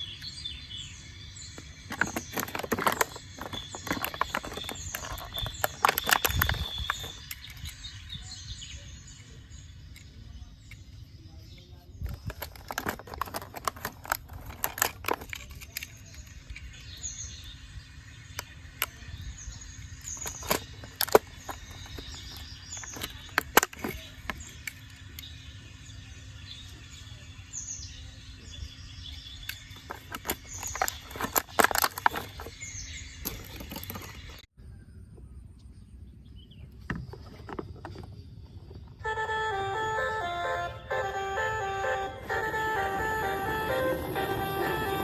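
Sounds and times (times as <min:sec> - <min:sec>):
small birds chirping: 0:00.0 - 0:45.0
sharp clicks and knocks: 0:01.6 - 0:07.8, 0:12.0 - 0:16.4, 0:20.0 - 0:24.8.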